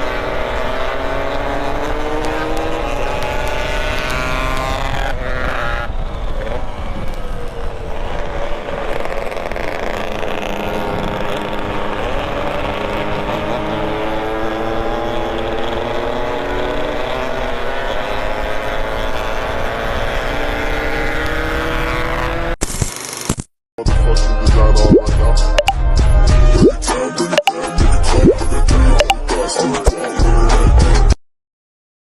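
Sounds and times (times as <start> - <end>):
wind and road noise: 0.0 - 23.2.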